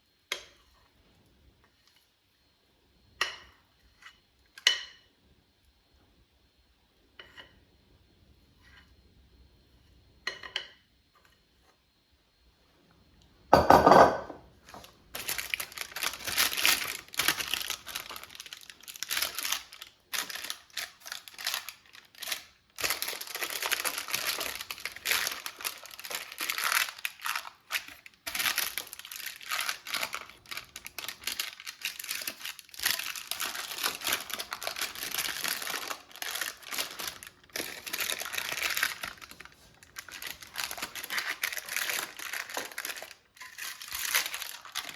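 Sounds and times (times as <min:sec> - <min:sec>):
parchment paper crinkling: 0:14.7 - 0:44.9.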